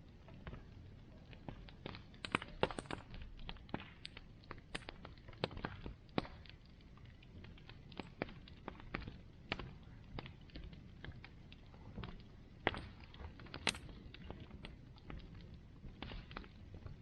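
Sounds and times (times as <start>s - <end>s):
bonfire crackling: 0.0s - 17.0s.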